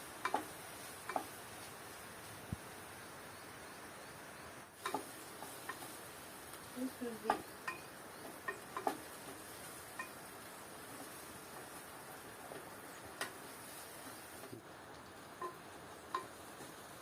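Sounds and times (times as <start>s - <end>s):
faint steady hiss: 0.0s - 17.0s
utensils and dishes clicking: 0.2s - 1.4s, 4.8s - 6.0s, 7.2s - 10.3s, 15.4s - 16.4s.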